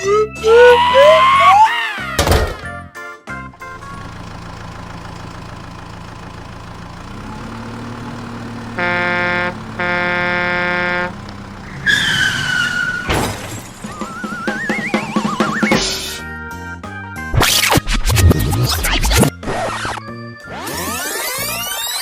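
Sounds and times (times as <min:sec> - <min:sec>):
falling whistle tone: 0:00.0 - 0:02.1, 0:11.8 - 0:13.2, 0:13.8 - 0:16.2
cartoon engine hum: 0:03.6 - 0:16.2
cartoon horn honks: 0:08.5 - 0:13.2.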